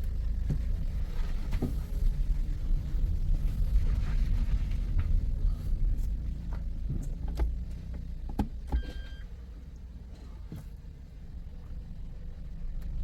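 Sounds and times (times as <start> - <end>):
car engine rumble: 0.0 - 13.0
short electronic beep: 8.8 - 9.3.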